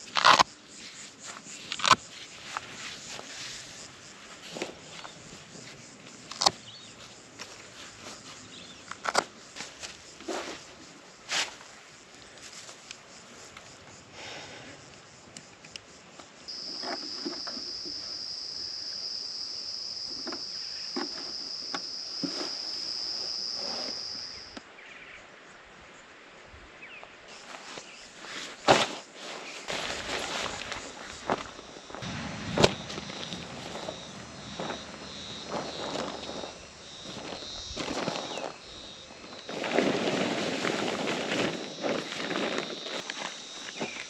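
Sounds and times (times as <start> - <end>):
insect buzzing: 31.2 - 39.8.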